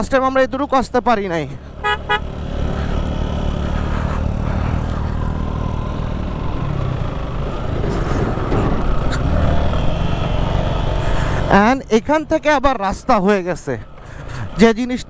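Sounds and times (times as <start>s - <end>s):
motorcycle engine under load: 1.6s - 12.4s.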